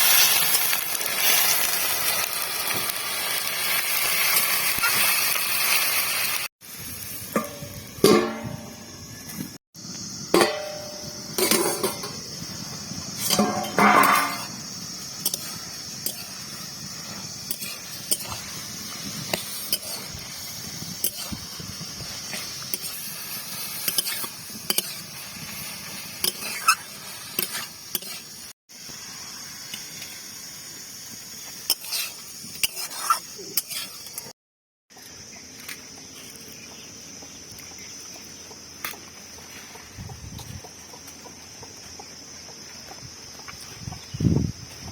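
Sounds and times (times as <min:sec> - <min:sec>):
food sizzling in a pan: 0:00.0 - 0:34.4
metal spatula scraping a pan: 0:10.4 - 0:12.2, 0:13.2 - 0:14.6, 0:19.3 - 0:20.1, 0:25.8 - 0:28.3, 0:31.7 - 0:34.2.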